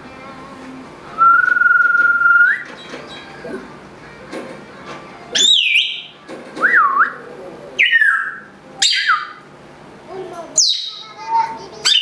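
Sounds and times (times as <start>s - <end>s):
parrot whistling: 1.2s - 2.7s, 5.4s - 9.4s.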